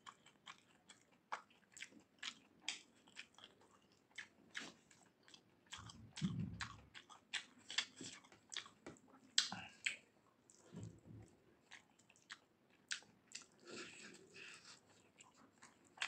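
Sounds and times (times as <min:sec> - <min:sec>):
person chewing: 0:00.0 - 0:16.0
wet mouth clicks and smacks: 0:09.4 - 0:10.0.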